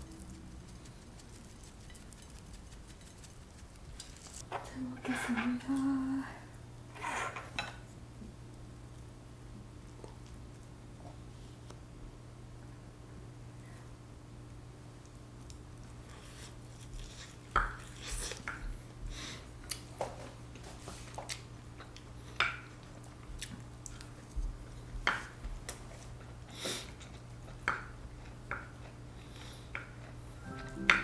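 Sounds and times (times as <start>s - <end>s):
chewing: 0.0s - 4.4s, 9.8s - 10.8s, 15.0s - 18.7s, 20.8s - 30.4s
steady low hum: 0.0s - 6.9s.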